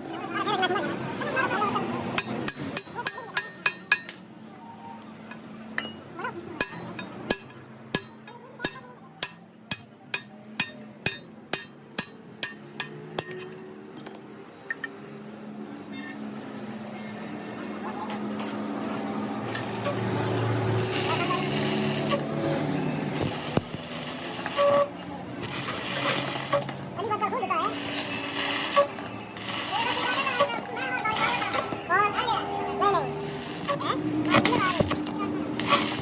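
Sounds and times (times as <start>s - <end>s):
hammer striking metal: 2.2s - 4.3s, 5.8s - 14.2s.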